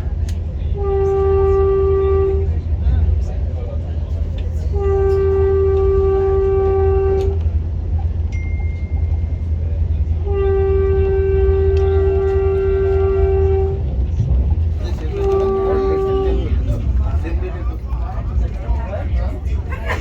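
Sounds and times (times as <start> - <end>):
train rumbling: 0.0 - 20.0
train horn blasts: 0.8 - 2.6, 4.7 - 7.6, 10.2 - 14.0, 14.8 - 17.0.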